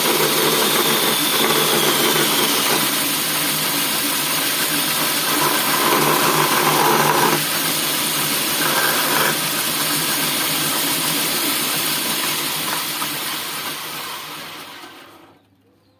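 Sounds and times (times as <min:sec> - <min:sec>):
bandsaw running: 0:00.0 - 0:15.4.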